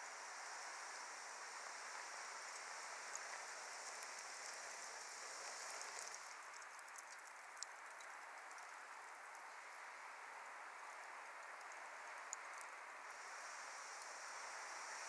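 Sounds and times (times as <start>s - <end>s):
wood fire hissing: 13.0s - 15.0s.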